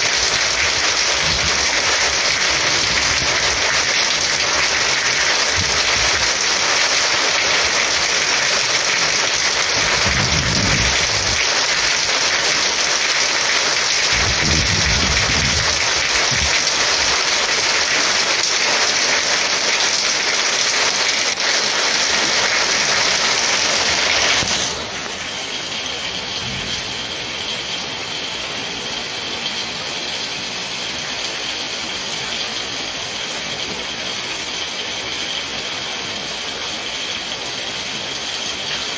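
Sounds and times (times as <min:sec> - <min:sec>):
heavy rain pouring: 0:00.0 - 0:38.9
low rumbles: 0:09.8 - 0:11.5, 0:14.1 - 0:16.6.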